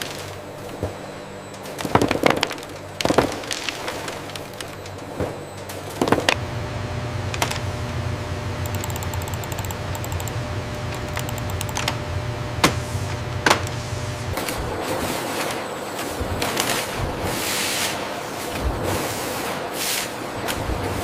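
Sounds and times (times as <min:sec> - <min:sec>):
machine humming: 0:00.0 - 0:17.4
fast light ticking: 0:08.6 - 0:12.0
sharp clicks and knocks: 0:08.6 - 0:12.0.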